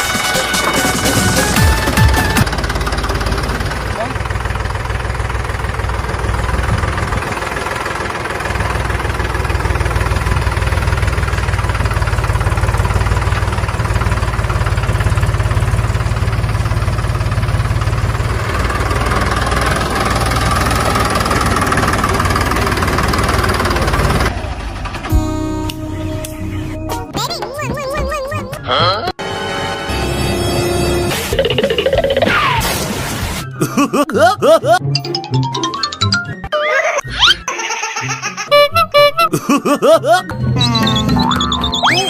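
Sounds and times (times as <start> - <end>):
tractor engine throbbing: 0.0 - 27.5.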